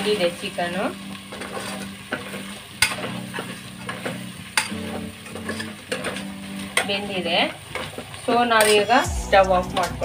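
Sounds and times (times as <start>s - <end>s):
chicken sizzling in a pot: 0.0s - 10.0s
spoon scraping a pan: 1.3s - 6.9s.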